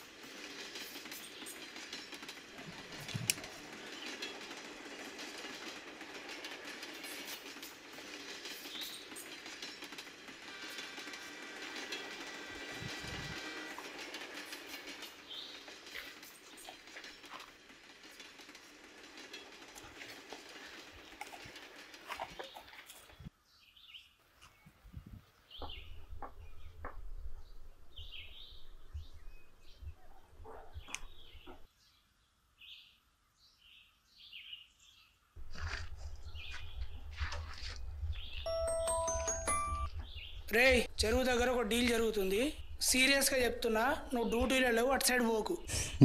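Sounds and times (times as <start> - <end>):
birds chirping: 20.5 - 32.0, 32.6 - 46.0.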